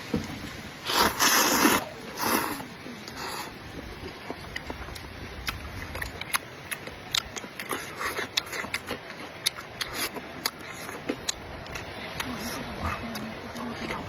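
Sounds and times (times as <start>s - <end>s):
wet chewing and mouth smacks: 0.9s - 14.0s.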